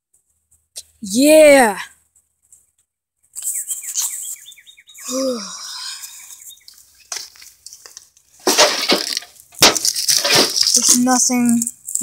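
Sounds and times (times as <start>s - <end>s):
bird chirping: 2.4s - 7.9s
rustling and handling noise: 6.3s - 12.0s.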